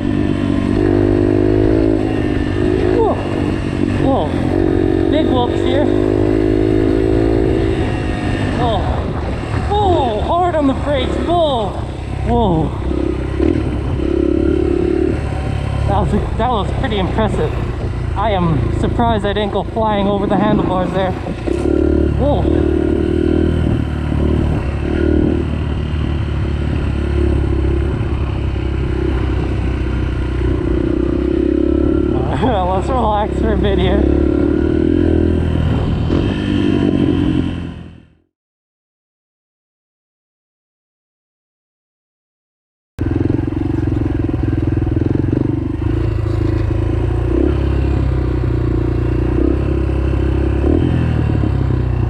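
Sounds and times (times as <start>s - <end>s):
dirt bike engine running: 0.0s - 38.1s, 43.0s - 52.0s
dirt bike engine idling: 43.0s - 49.3s.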